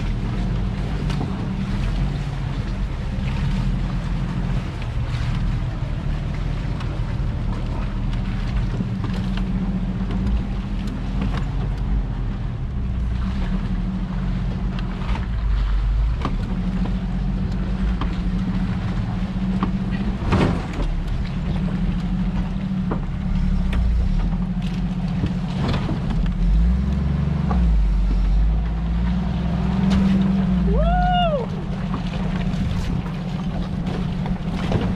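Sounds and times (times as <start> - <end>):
vehicle engine running at low speed: 0.0 - 34.9
vehicle body knocks and rattles: 19.5 - 26.4.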